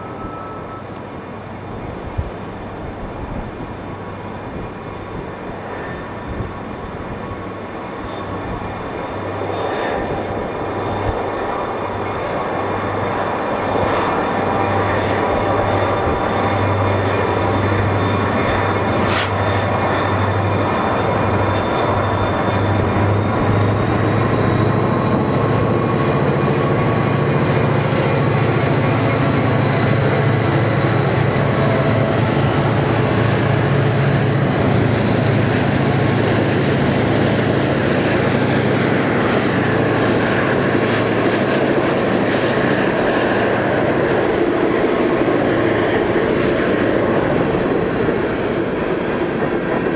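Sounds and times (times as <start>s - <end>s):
locomotive engine drone: 0.0s - 49.9s
high whine: 9.0s - 48.4s.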